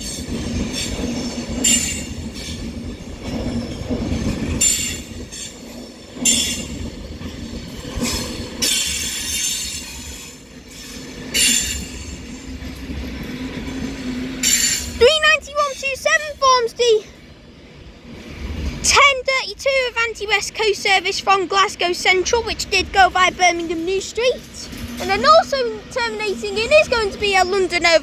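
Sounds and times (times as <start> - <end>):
train wheels squealing: 0.0 - 12.6, 13.5 - 15.0
electric train pulling in: 0.0 - 28.0.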